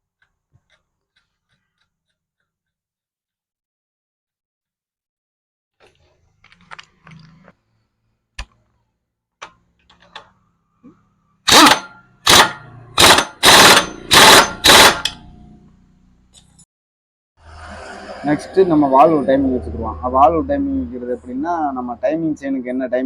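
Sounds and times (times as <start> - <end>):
impact wrench rattling: 11.5 - 15.3.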